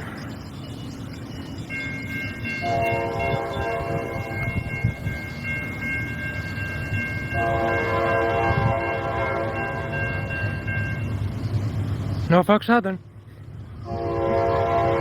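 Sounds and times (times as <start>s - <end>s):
low rumble of train: 0.0s - 15.0s
locomotive air horn: 2.6s - 4.6s, 7.3s - 10.3s, 13.8s - 15.0s.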